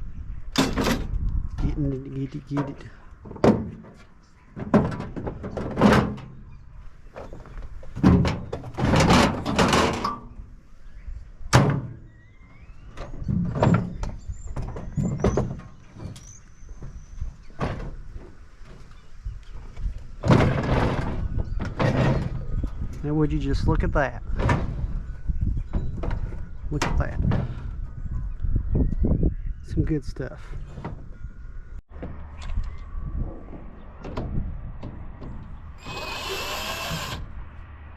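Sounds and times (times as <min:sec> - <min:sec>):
metal knocks and scrapes: 0:02.5 - 0:10.4, 0:13.0 - 0:23.0
faint rising squeak: 0:12.0 - 0:17.6, 0:35.8 - 0:37.3.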